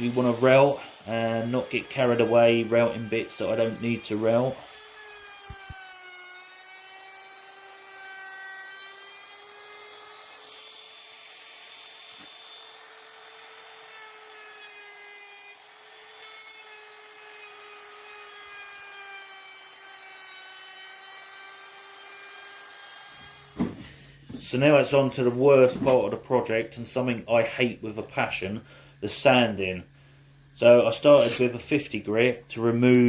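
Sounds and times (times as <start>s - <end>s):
router cutting hiss: 0.0s - 8.1s, 30.6s - 33.0s
wood router high whine: 0.0s - 24.4s.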